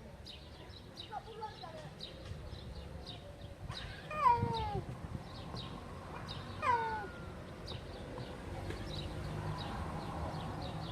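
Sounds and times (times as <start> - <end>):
cat meowing: 6.6 - 7.3.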